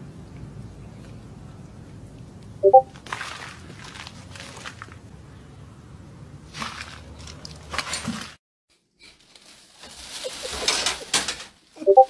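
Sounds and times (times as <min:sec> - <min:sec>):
plastic bag rustling: 0:02.9 - 0:05.2, 0:06.5 - 0:08.4, 0:09.2 - 0:11.9.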